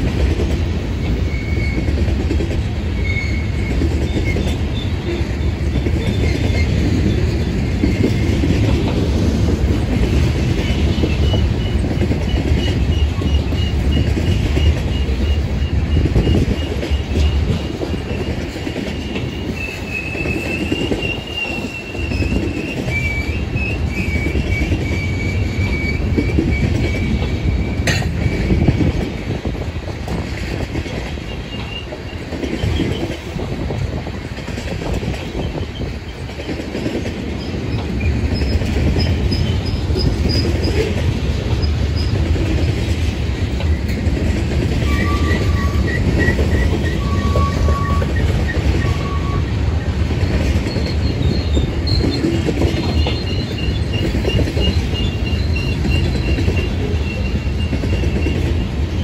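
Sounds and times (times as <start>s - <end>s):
freight train rumbling past: 0.0s - 59.0s
wheel flange squeal: 1.2s - 1.9s, 3.0s - 8.4s, 10.6s - 29.0s, 44.8s - 49.6s, 50.5s - 59.0s.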